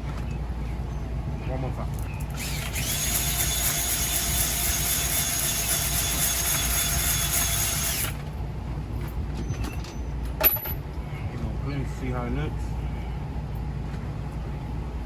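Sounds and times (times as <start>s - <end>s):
power tool whining: 2.3s - 8.2s.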